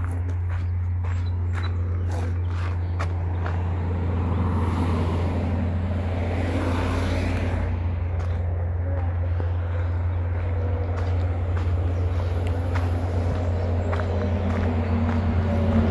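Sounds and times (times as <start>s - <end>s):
vehicle passing: 0.0s - 15.9s
steady low rumble: 5.2s - 15.9s.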